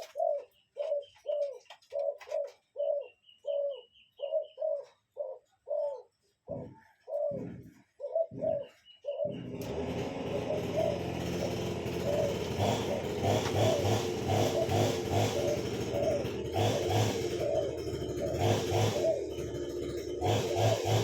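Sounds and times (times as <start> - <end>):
bird's short low calls: 0.0 - 9.6.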